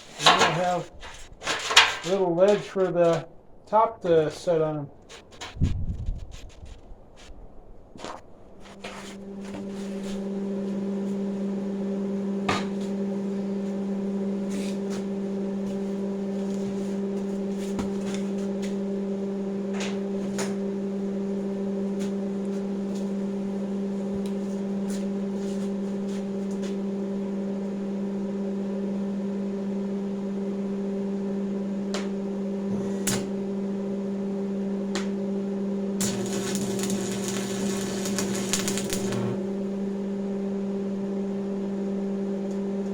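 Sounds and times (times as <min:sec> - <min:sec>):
power tool cutting sheet metal: 0:36.0 - 0:39.5.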